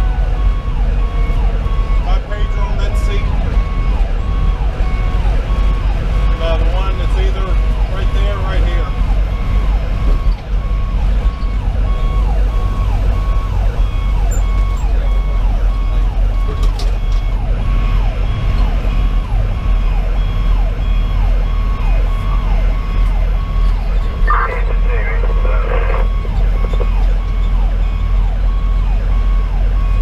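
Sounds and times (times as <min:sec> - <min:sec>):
diesel engine drone: 0:00.0 - 0:30.0
road noise: 0:00.0 - 0:30.0.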